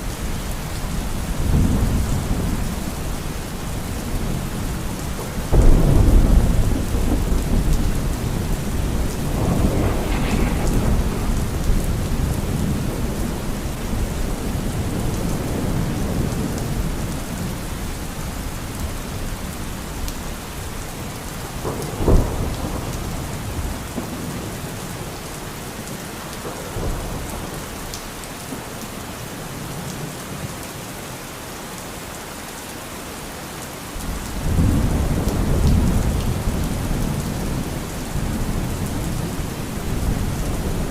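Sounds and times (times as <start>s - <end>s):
steady rain: 0.0s - 40.9s
rolling thunder: 0.3s - 25.1s, 34.0s - 40.9s
sharp thunderclap: 5.1s - 17.4s, 21.5s - 24.5s.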